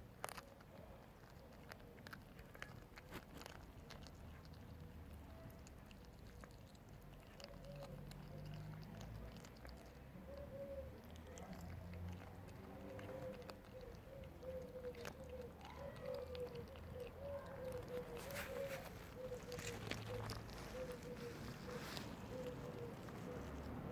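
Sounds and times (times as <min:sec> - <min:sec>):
soft animal calls: 0:05.0 - 0:23.9
faint clicks and scuffs: 0:11.3 - 0:23.9.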